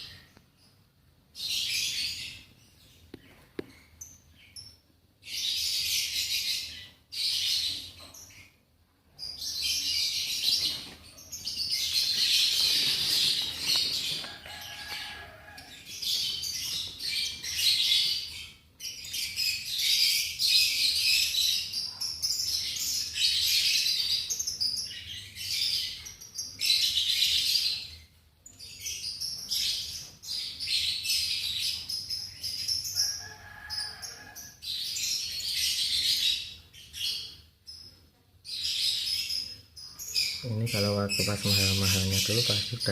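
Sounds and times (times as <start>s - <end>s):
lovebirds twittering: 9.2s - 37.9s, 38.5s - 42.9s.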